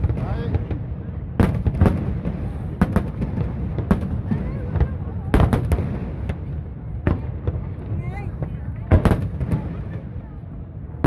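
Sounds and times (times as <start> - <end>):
crowd chatter: 0.0 - 11.0
fireworks bangs: 0.0 - 11.0.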